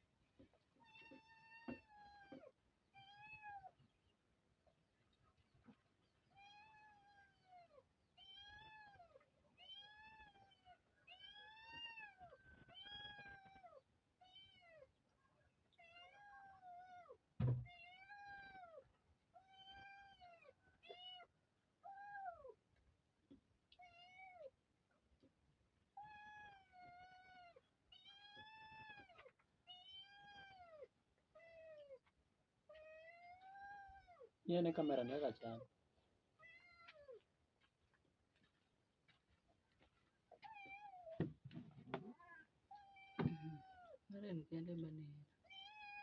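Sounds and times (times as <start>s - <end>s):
cat meowing: 15.8s - 18.8s, 19.4s - 22.6s, 36.4s - 37.2s, 42.1s - 44.0s, 45.4s - 46.0s.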